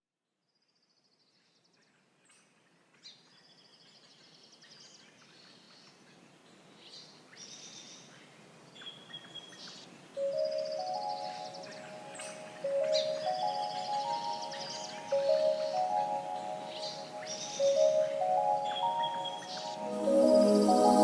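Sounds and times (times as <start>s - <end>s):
faint outdoor background: 0.2s - 21.0s
small birds chirping: 1.0s - 21.0s
chime-like music notes: 10.2s - 21.0s.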